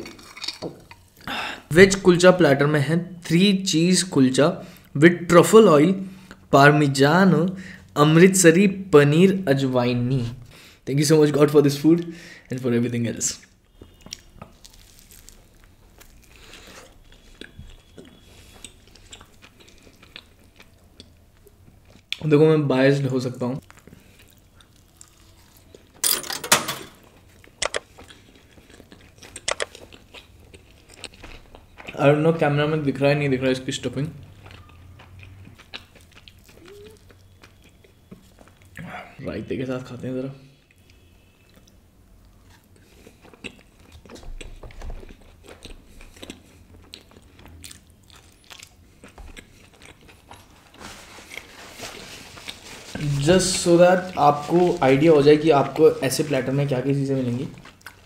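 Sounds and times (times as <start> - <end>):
person chewing crunchy bread: 0.0 - 1.5, 13.7 - 22.2, 23.6 - 26.0, 27.0 - 32.2, 34.0 - 38.9, 40.7 - 58.0.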